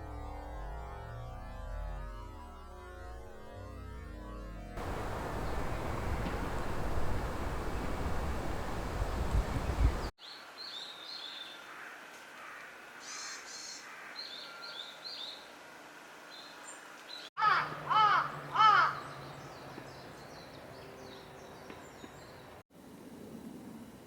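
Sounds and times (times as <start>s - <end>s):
birds chirping: 4.8s - 10.1s
loud bird calls rising and falling: 4.8s - 10.1s.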